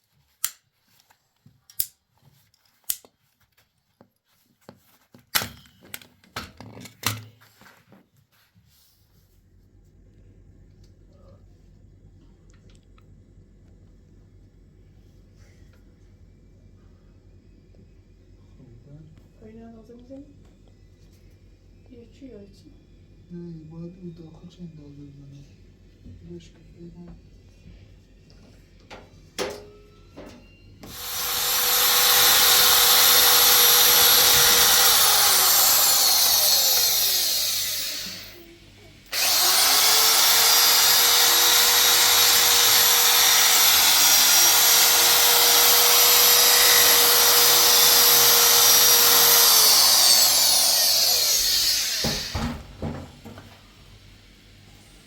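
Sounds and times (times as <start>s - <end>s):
electric power tool running: 30.8s - 38.5s, 39.1s - 52.6s.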